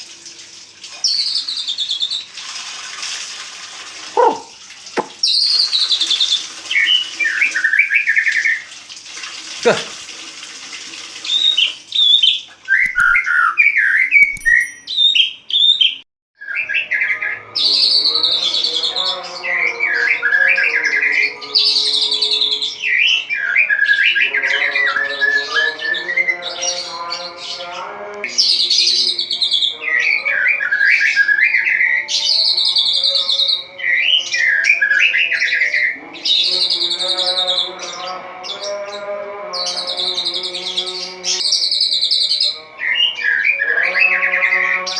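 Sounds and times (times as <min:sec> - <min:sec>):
bird singing whistled phrases: 0:12.0 - 0:17.2.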